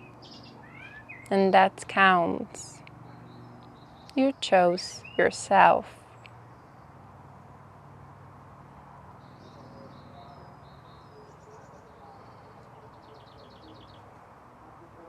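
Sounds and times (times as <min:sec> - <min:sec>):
small bird chirping and trilling: 0:00.0 - 0:01.3, 0:03.0 - 0:05.4
low steady hum: 0:00.0 - 0:15.0.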